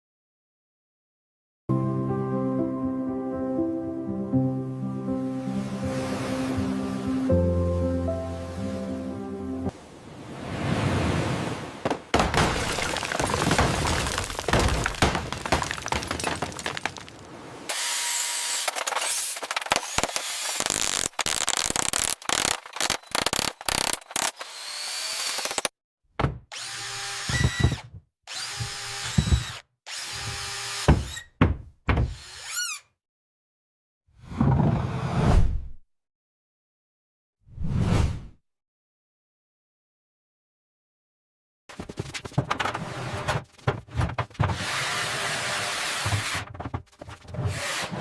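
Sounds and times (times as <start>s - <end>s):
knocks and scraping: 11.8s - 17.4s, 41.7s - 44.9s, 46.0s - 48.0s
power tools drilling: 17.7s - 25.7s, 26.5s - 31.2s.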